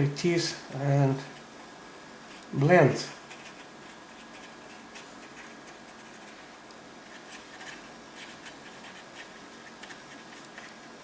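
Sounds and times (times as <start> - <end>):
paintbrush dabbing and scratching: 2.2 - 11.0.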